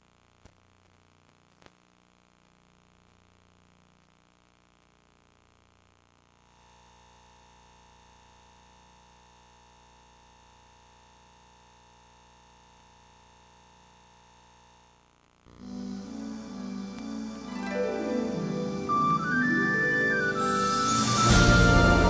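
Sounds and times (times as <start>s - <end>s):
sine-wave test tone: 0.0s - 15.6s
tape hiss and hum: 0.0s - 22.0s.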